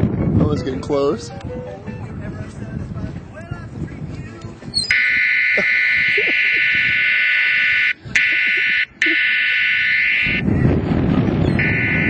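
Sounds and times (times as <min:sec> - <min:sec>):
high-pitched buzzing tone: 0:11.6 - 0:12.0.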